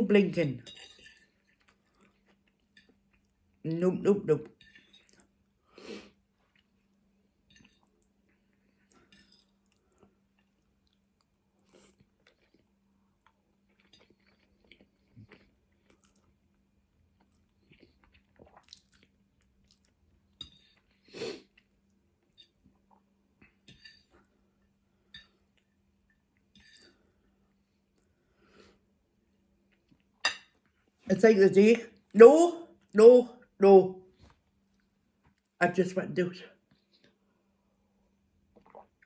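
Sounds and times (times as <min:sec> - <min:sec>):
person chewing: 0:07.7 - 0:21.9, 0:38.5 - 0:39.0.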